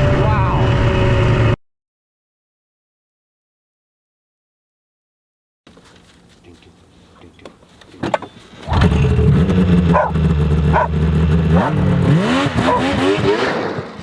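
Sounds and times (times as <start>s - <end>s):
snowmobile engine revving: 8.6s - 14.0s.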